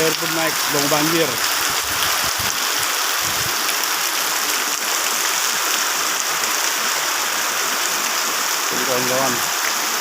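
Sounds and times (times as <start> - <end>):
rain drop ticks: 0.0 - 2.9
heavy rain pouring: 0.0 - 10.0.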